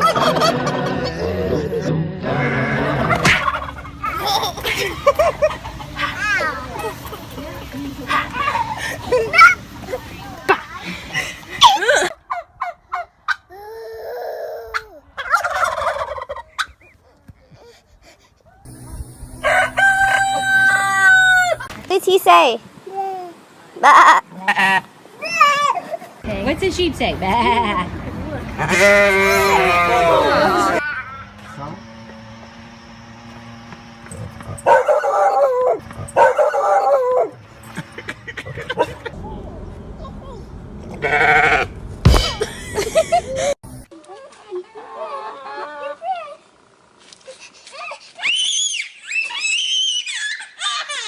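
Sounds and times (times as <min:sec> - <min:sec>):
turkey calling: 0:15.2 - 0:17.0, 0:19.4 - 0:21.7
rattling fowl call: 0:19.4 - 0:21.7.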